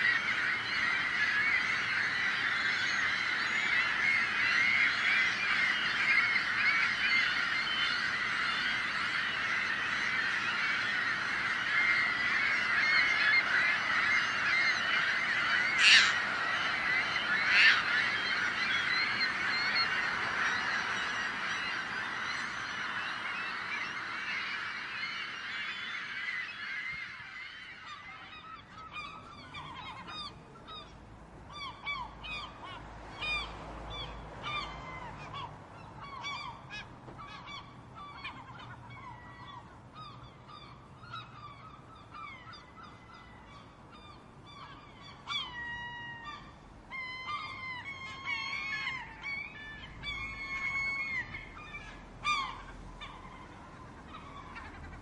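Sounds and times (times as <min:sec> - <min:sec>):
gulls calling: 0:00.0 - 0:55.0.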